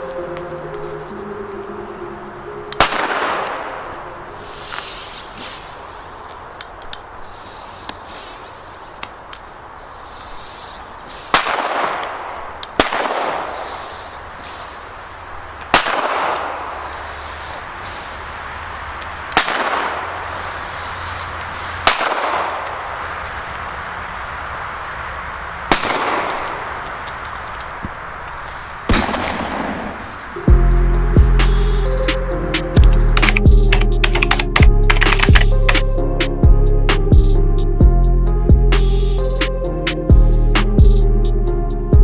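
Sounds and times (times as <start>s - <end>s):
music: 0.0s - 4.6s, 30.4s - 42.0s
firecracker bangs echoing: 28.9s - 30.3s.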